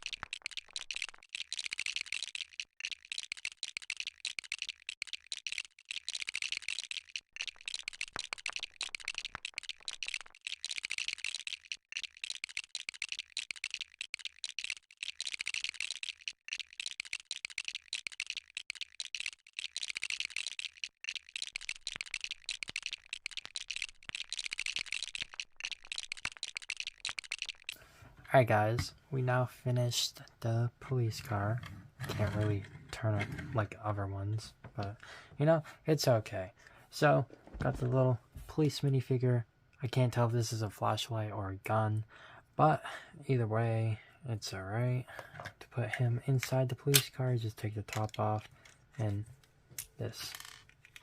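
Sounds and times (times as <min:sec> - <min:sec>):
plastic bricks clicking and rattling: 0:00.0 - 0:27.8, 0:31.1 - 0:34.0, 0:45.2 - 0:51.0.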